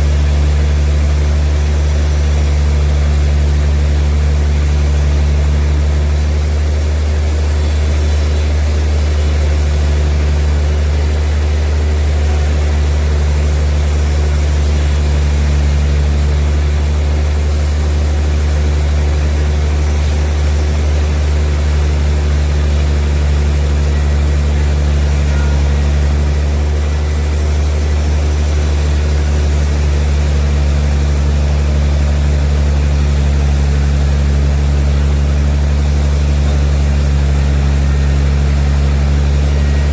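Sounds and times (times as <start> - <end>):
sawmill machinery deep hum: 0.0 - 39.9.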